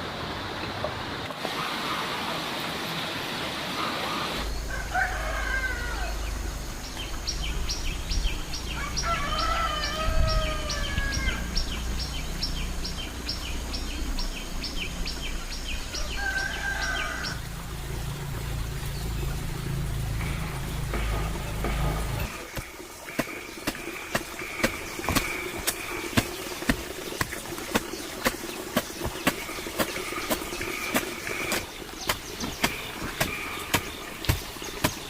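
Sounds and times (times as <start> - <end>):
roosters crowing: 4.2 - 6.4, 8.7 - 11.6, 15.9 - 17.5.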